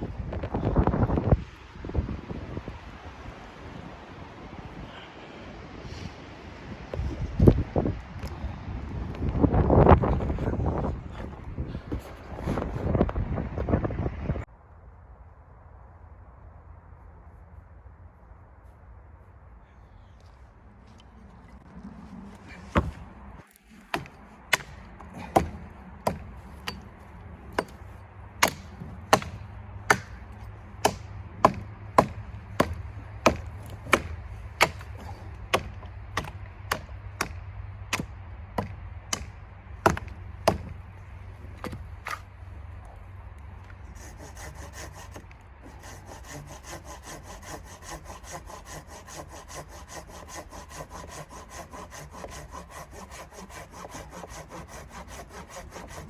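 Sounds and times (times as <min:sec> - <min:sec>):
hand saw cutting wood: 0:22.6 - 0:40.8, 0:43.7 - 0:56.0.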